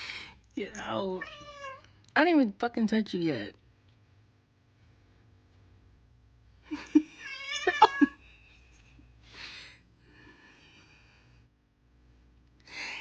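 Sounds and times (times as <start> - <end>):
cat yowling: 1.2 - 1.8, 7.2 - 8.1
cat whining: 7.2 - 8.2.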